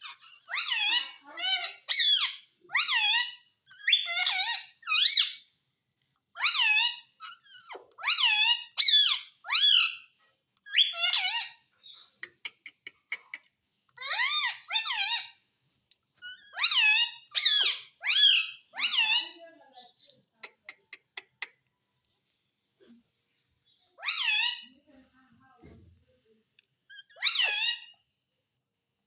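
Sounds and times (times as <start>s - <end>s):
parrot squeaky calls: 0.0s - 5.4s, 6.4s - 10.1s, 10.7s - 12.1s, 14.0s - 15.4s, 16.2s - 20.7s, 23.7s - 24.7s, 26.9s - 28.0s.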